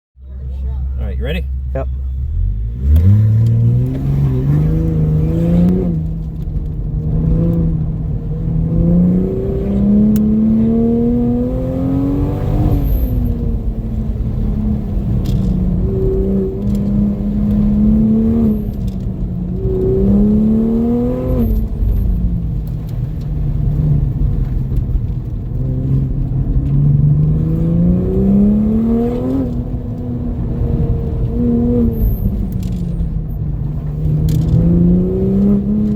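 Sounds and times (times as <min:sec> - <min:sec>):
turbocharged car engine accelerating: 0:00.4 - 0:35.9.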